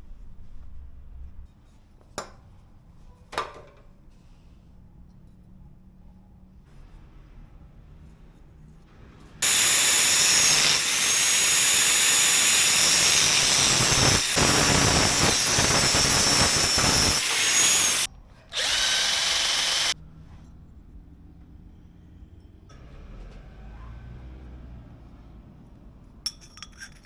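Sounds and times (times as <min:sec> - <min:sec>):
power tool high whine: 0:09.4 - 0:20.0.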